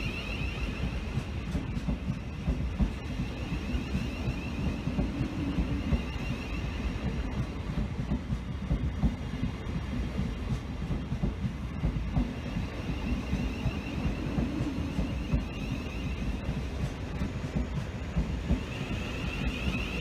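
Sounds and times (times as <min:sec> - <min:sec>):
faint wavering high whine: 0:00.0 - 0:07.8, 0:12.2 - 0:20.0
train rumbling on rails: 0:00.0 - 0:20.0.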